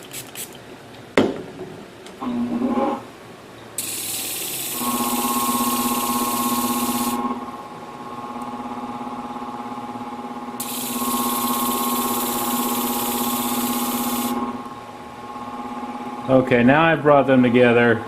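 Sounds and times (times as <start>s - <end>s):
sharpening machine motor humming: 3.8s - 7.4s, 10.6s - 14.7s.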